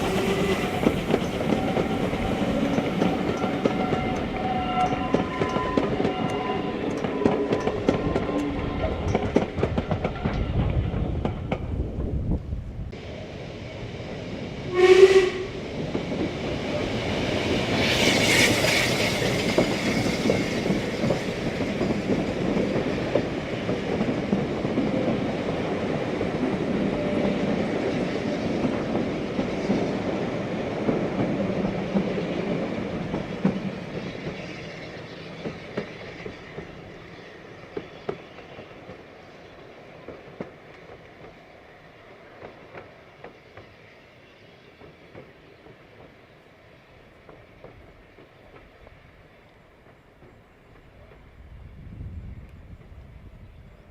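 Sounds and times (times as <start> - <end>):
steam locomotive whistle: 0.0 - 9.2, 14.7 - 15.6
train passing rumble: 0.0 - 53.9.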